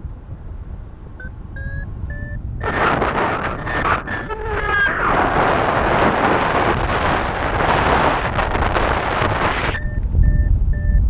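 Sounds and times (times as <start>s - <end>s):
airflow rushing over microphone: 0.0s - 10.4s
variometer beeps: 1.2s - 7.0s, 7.6s - 11.0s.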